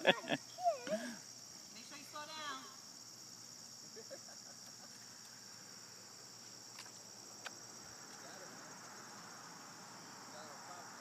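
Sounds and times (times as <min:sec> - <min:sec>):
high-pitched insects chorus: 0:00.0 - 0:11.0.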